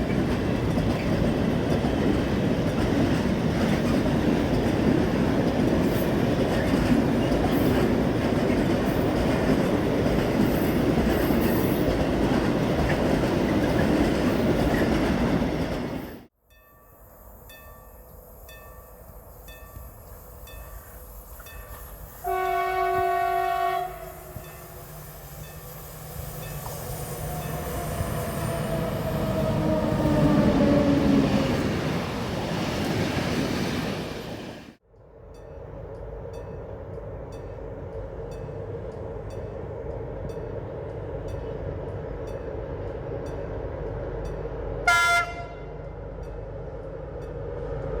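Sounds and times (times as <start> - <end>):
train passing with rumble: 0.0 - 16.3, 17.0 - 48.0
train horn blast: 22.2 - 24.7, 44.8 - 46.0.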